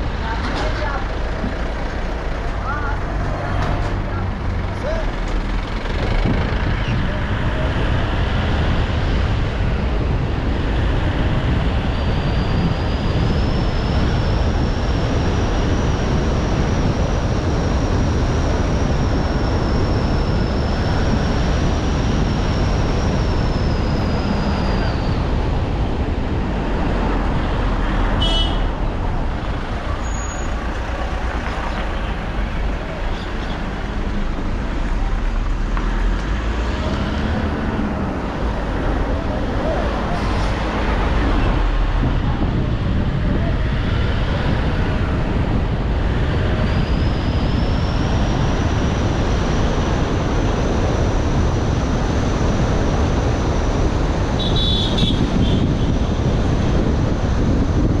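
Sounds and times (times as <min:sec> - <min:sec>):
car road and engine noise: 0:00.0 - 0:58.0.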